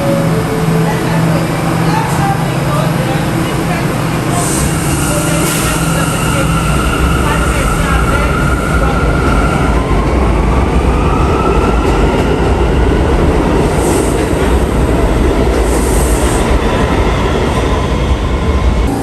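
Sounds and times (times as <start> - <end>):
subway train rumbling on rails: 0.0 - 19.0.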